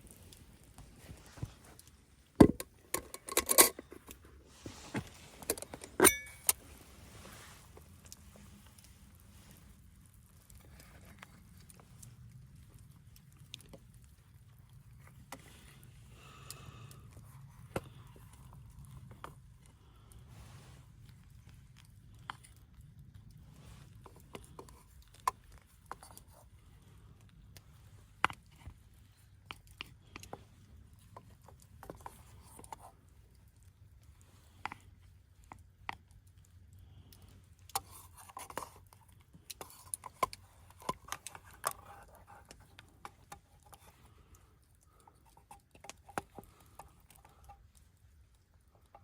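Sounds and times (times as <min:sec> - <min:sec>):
low steady rumble: 0:00.0 - 0:38.1
small clicks and light knocks: 0:21.0 - 0:49.0.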